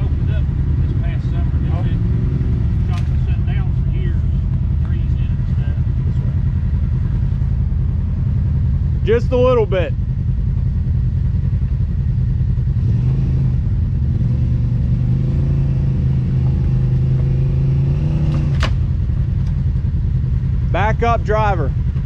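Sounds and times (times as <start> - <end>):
utv engine running: 0.0 - 22.0.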